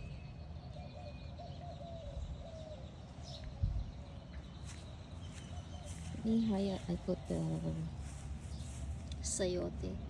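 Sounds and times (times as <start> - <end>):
steady low rumble: 3.4 - 10.0.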